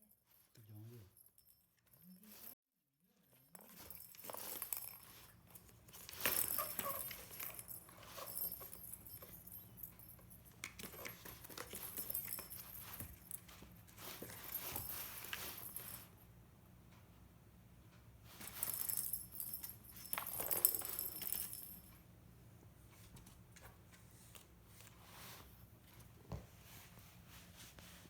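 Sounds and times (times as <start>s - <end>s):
cat toy rustling and clicking: 3.3s - 16.2s, 18.2s - 22.1s.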